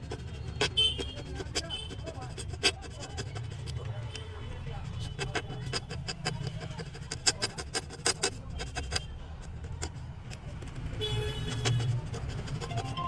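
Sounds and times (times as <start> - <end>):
razor blade scraping solder: 4.9 - 13.0.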